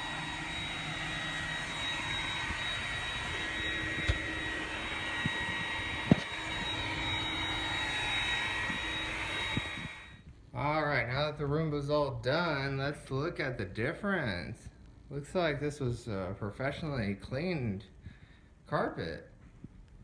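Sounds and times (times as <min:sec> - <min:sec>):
robot vacuum whirring: 0:00.0 - 0:10.2.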